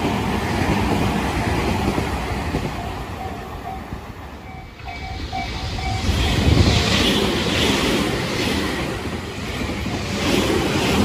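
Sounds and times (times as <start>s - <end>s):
train rushing past: 0.0s - 11.0s
level crossing warning bell: 1.4s - 7.4s.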